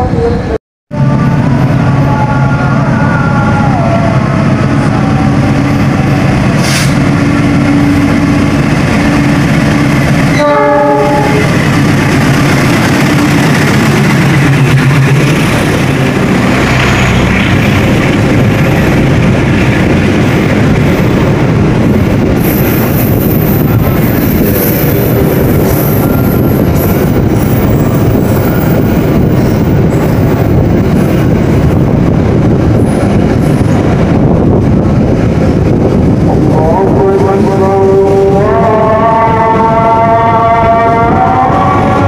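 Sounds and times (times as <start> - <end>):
wheels rumbling and clattering on rails: 0.0 - 42.0
train horn: 10.3 - 11.6, 36.6 - 42.0.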